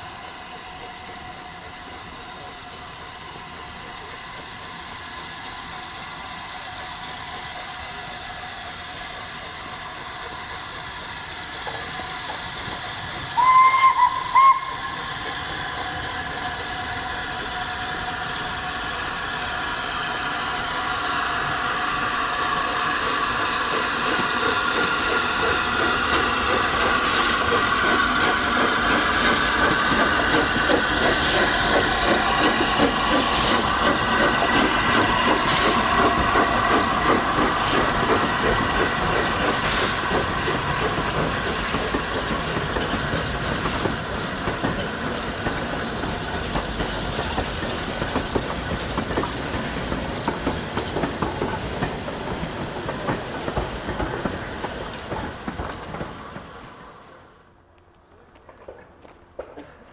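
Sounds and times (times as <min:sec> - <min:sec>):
train wheels clattering: 0:21.3 - 0:56.8.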